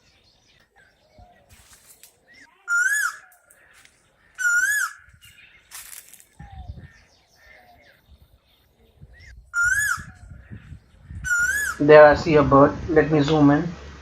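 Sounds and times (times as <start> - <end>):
faint bird chirps: 0.0 - 11.8
bird calling rising and falling: 0.7 - 8.0, 9.1 - 11.9.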